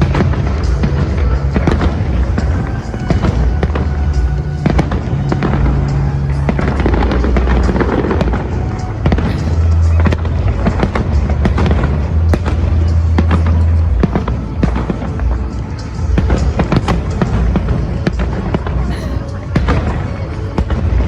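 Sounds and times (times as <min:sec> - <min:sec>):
loud music with deep bass: 0:00.0 - 0:21.0.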